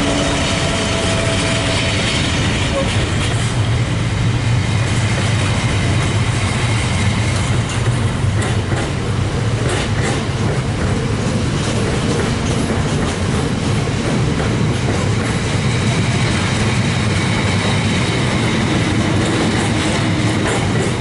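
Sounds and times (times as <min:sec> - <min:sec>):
freight train rumbling past: 0:00.0 - 0:21.0
wheels clicking over rail joints: 0:04.8 - 0:16.0, 0:19.0 - 0:21.0.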